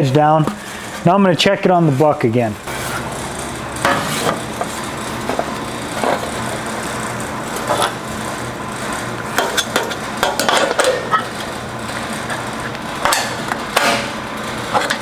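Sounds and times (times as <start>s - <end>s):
steady shop hum: 0.0s - 15.0s.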